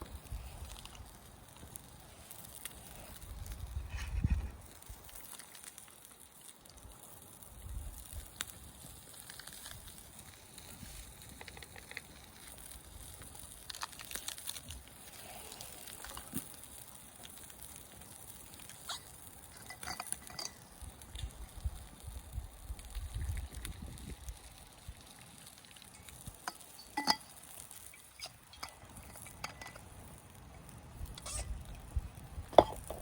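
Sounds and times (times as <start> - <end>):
campfire crackling: 0.0 - 33.0
wind gusts on microphone: 3.2 - 4.7, 21.5 - 24.4
metal cookware clinking: 19.6 - 20.6, 26.5 - 27.3.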